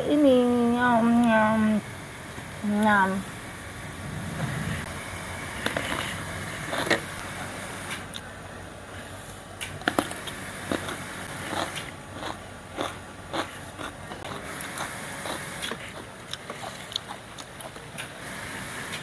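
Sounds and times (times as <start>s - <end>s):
person crunching cucumber: 9.9s - 17.9s.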